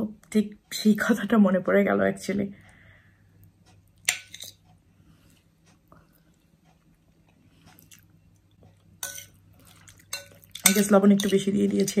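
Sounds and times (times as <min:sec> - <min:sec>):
faint steady hum: 0:00.0 - 0:12.0
person chewing salad: 0:06.0 - 0:10.6.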